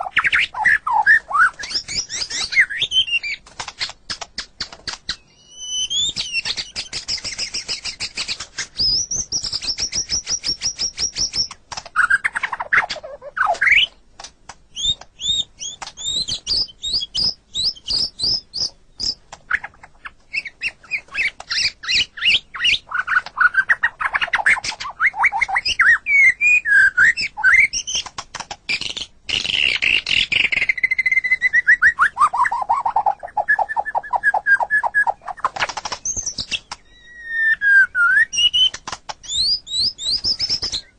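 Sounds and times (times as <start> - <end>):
songbird whistles and trills: 0.0 - 14.0, 14.7 - 40.9.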